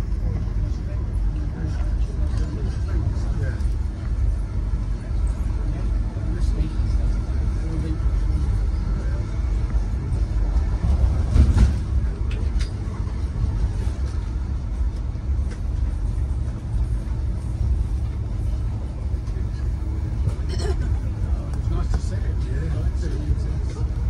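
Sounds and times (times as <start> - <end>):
train rumbling at speed: 0.0 - 24.0.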